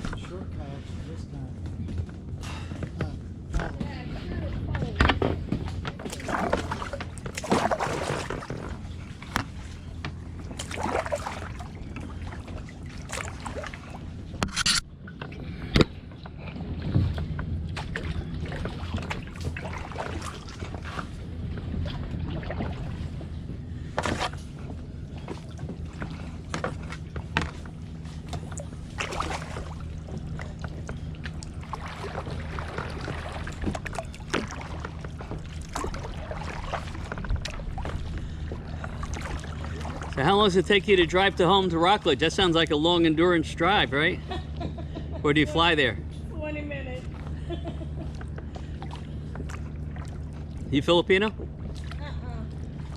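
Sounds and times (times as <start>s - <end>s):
paddle splashing in water: 5.2s - 45.8s, 47.0s - 52.9s.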